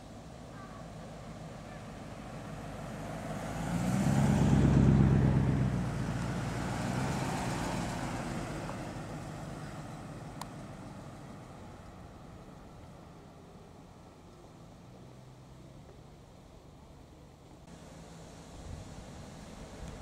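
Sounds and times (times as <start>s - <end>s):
car engine passing by: 0.0s - 20.0s
second car passing: 0.5s - 16.1s.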